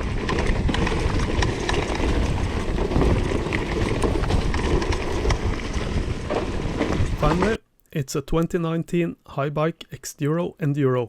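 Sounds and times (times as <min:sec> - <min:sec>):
bike clicks and rattles: 0:00.0 - 0:07.6
tyres rumbling on trail: 0:00.0 - 0:07.6.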